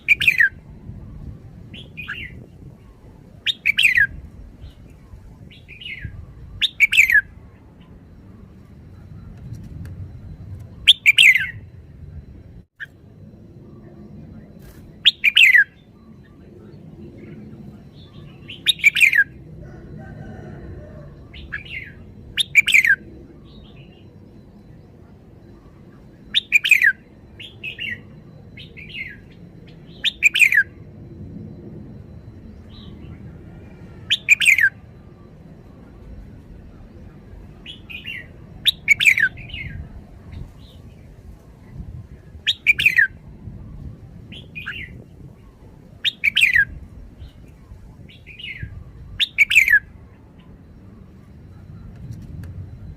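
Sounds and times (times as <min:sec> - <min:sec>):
quieter bird notes: 0:00.0 - 0:52.9
bird calling bright phrases: 0:01.7 - 0:08.8, 0:14.6 - 0:30.8, 0:32.2 - 0:36.0, 0:36.7 - 0:39.9.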